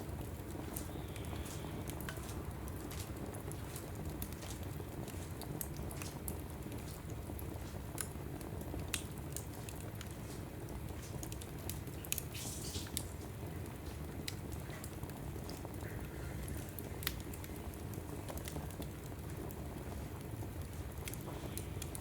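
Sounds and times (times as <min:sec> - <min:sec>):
logs crackling and popping: 0:00.0 - 0:22.0
low rumble of fire: 0:00.0 - 0:22.0
fire hiss: 0:12.2 - 0:13.2.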